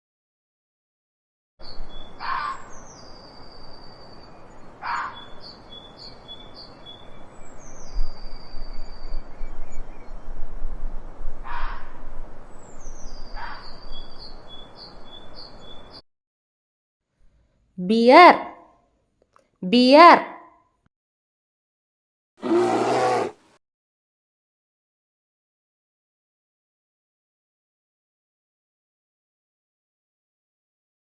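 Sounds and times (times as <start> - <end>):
birds chirping: 1.6 - 10.3, 11.5 - 16.0
fox sharp cries: 2.2 - 2.7, 4.8 - 5.2, 11.4 - 12.0, 13.4 - 13.7, 22.4 - 23.4.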